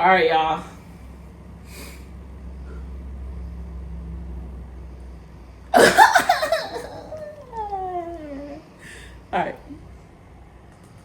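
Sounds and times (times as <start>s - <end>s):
woman coughing and gagging: 5.8s - 7.2s.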